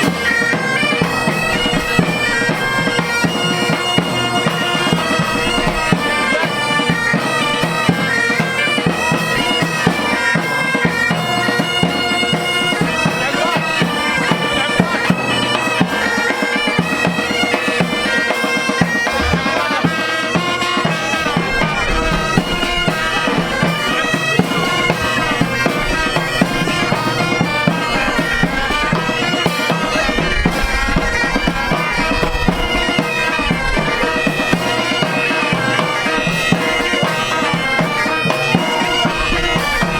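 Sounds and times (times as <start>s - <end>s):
bagpipe band playing: 0.0s - 39.9s.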